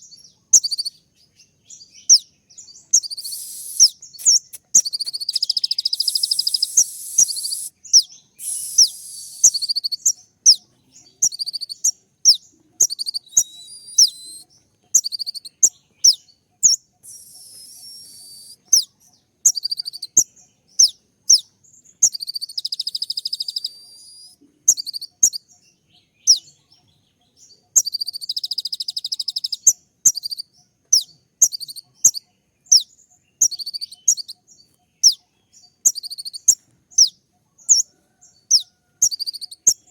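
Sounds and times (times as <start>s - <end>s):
bird high sharp chirps: 0.5s - 1.1s, 1.9s - 26.8s, 27.5s - 39.9s
bird buzzy trills: 3.0s - 10.6s, 11.2s - 20.2s.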